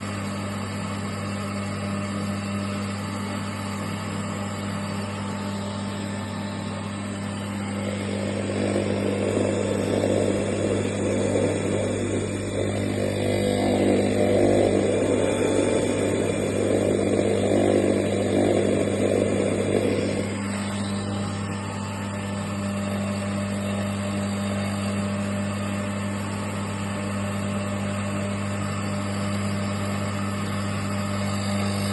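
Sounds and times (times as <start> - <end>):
grinder motor humming: 0.0 - 31.9
coarse grinding noise: 7.4 - 21.4.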